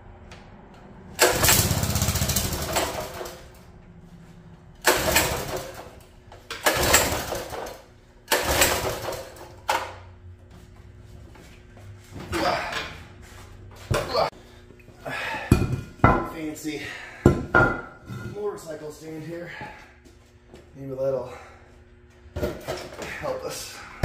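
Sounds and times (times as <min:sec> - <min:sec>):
pull starter pulls: 0:01.2 - 0:03.6, 0:04.8 - 0:09.9
small engine cranking: 0:01.2 - 0:03.6, 0:04.8 - 0:09.4.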